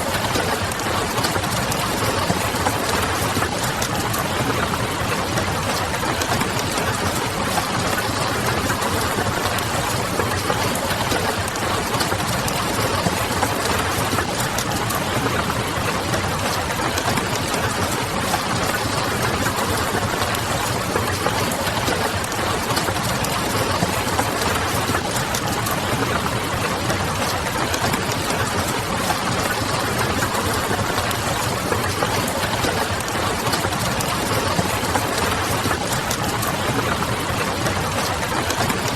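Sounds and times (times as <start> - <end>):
rain pattering on a window: 0.0 - 38.9.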